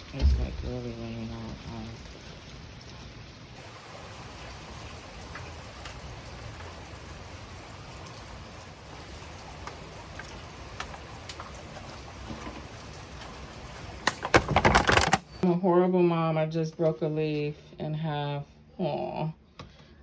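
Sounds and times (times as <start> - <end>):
heavy rain falling: 0.0 - 15.4
raindrops ticking close by: 0.0 - 15.4.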